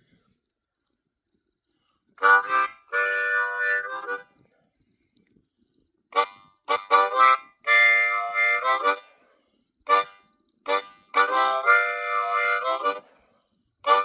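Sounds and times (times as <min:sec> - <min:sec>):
blues harmonica: 0:02.2 - 0:04.3, 0:06.2 - 0:09.1, 0:09.9 - 0:13.2.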